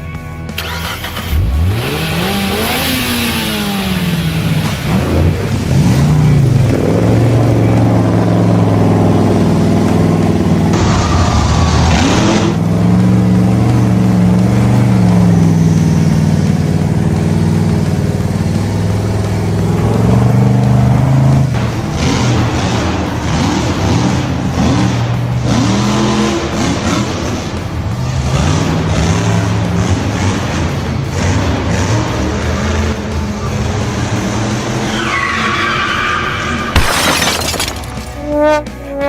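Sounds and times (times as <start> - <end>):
truck engine revving: 0.0 - 39.0.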